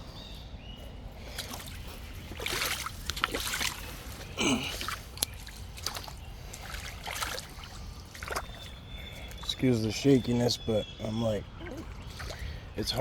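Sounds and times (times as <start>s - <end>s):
footsteps wading through water: 0.9s - 9.6s, 11.8s - 12.6s.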